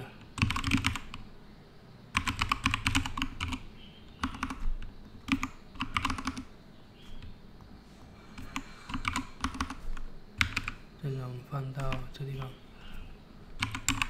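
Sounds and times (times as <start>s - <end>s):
typing on computer keyboard: 0.0s - 1.3s, 2.1s - 6.5s, 8.3s - 10.8s, 11.7s - 12.6s, 13.5s - 14.0s.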